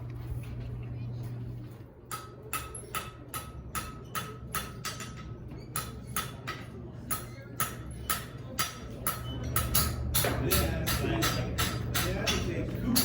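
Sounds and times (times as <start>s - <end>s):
hammer striking metal on anvil: 2.1s - 13.0s.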